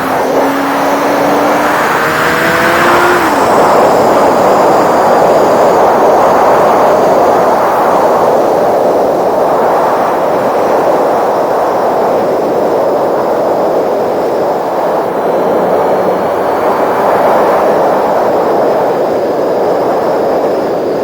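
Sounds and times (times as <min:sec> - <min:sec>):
motorcycle engine revving: 0:00.0 - 0:05.8, 0:13.6 - 0:18.6
wind noise on microphone: 0:00.0 - 0:21.0.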